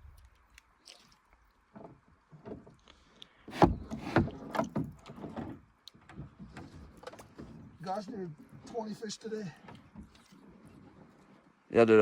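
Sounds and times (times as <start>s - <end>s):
knocks on canoe hull: 3.5s - 5.0s.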